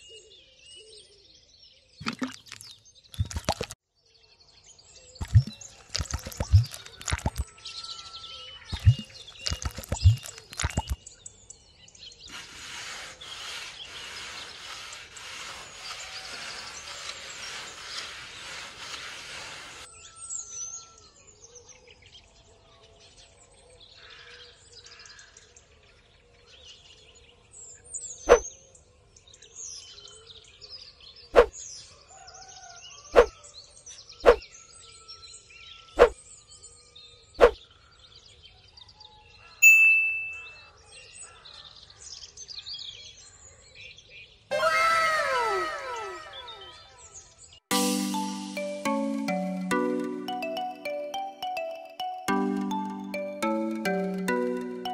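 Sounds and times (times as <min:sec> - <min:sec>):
bird chirps: 0:05.1 - 0:11.2, 0:39.6 - 0:40.8
short ringing ding: 0:39.6 - 0:40.6.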